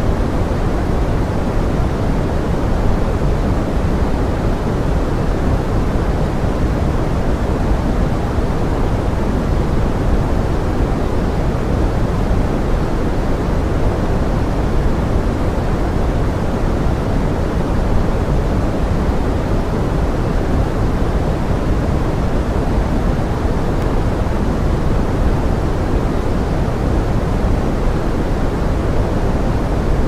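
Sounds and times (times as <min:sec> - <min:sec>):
pink noise: 0:00.0 - 0:30.0.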